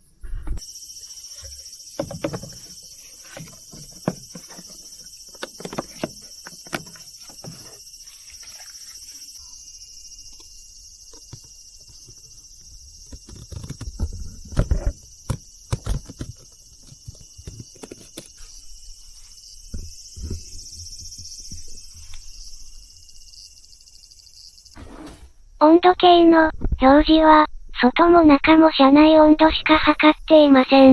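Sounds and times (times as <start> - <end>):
objects being handled: 0.3 - 9.4, 11.1 - 22.4.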